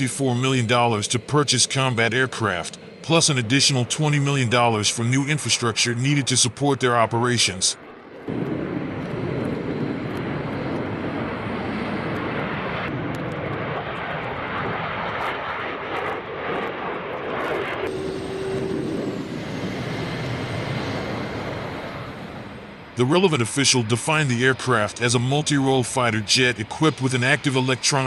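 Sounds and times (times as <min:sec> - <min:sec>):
jet engine rushing: 0:00.0 - 0:28.0
faint high whine: 0:17.8 - 0:28.0.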